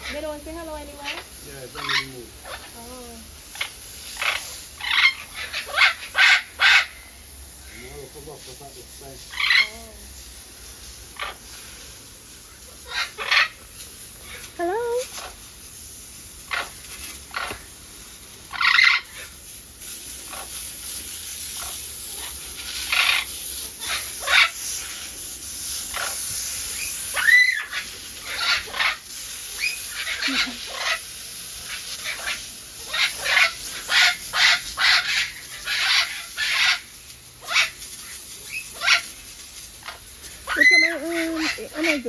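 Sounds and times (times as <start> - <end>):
parrots squawking: 0.0 - 7.8, 9.2 - 10.0, 11.1 - 11.5, 12.6 - 15.4, 16.5 - 17.7, 18.4 - 19.4, 20.2 - 20.6, 21.6 - 25.0, 25.9 - 42.0.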